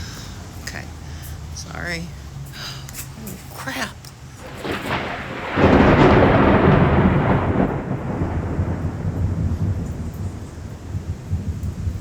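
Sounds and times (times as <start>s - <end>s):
thunder rumbling: 4.4s - 12.0s.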